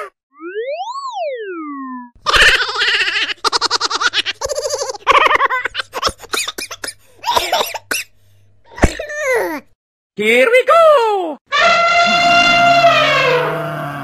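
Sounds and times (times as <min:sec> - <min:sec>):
high-pitched cartoon laughter: 0:02.2 - 0:06.6.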